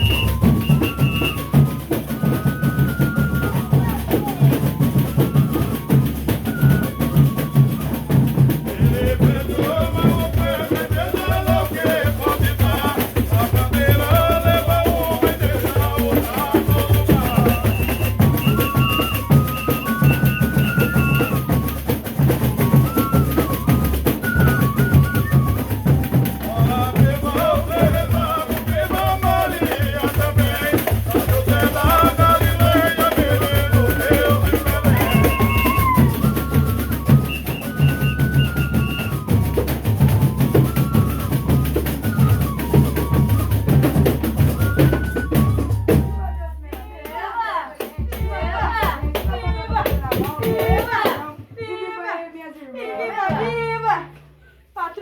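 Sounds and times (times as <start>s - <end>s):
drums and percussion beat: 0.0s - 51.8s
group singing devotional song: 8.4s - 18.4s, 25.8s - 36.9s, 46.4s - 54.2s.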